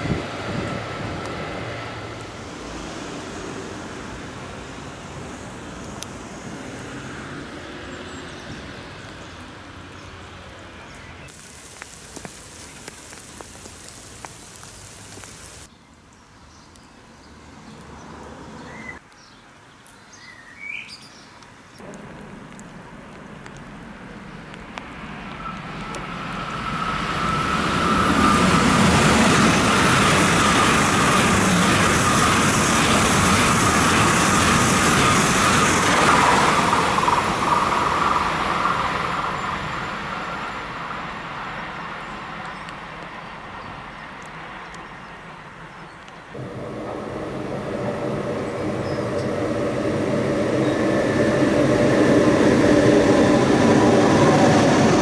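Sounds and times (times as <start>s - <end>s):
train rumbling past: 0.0s - 8.8s, 21.8s - 45.6s, 46.2s - 55.0s
rain pattering on pavement: 11.3s - 15.7s, 21.4s - 26.4s
steady high tone: 46.4s - 55.0s.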